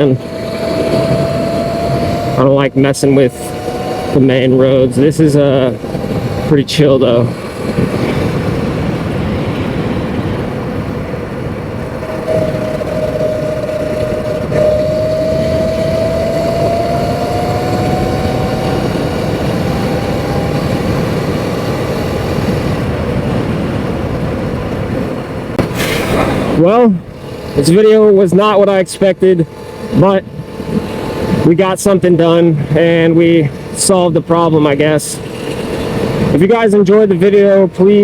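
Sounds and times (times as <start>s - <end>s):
electric motor whine: 0.0s - 6.6s, 11.8s - 23.0s, 29.4s - 32.0s
steady rushing noise: 0.0s - 38.0s.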